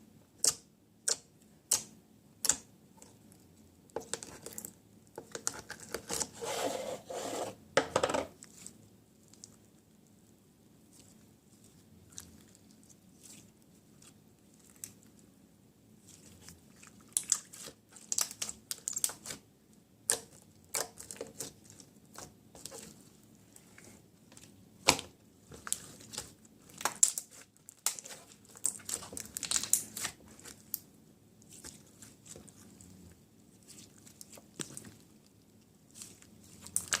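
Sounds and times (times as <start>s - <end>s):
crinkling and tearing: 25.5s - 30.8s.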